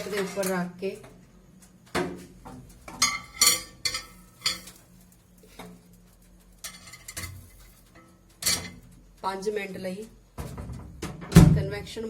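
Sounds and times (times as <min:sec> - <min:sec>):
pizza tray clinking on metal rack: 0:03.0 - 0:04.8, 0:06.6 - 0:08.8.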